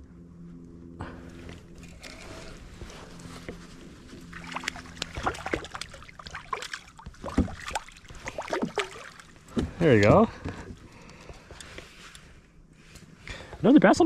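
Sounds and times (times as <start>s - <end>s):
water splashing and dripping: 4.3s - 9.4s.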